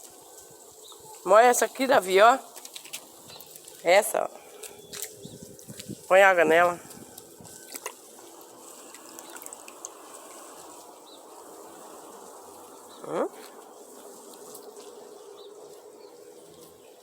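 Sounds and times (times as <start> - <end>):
water splashing onto plants: 4.9 - 10.9.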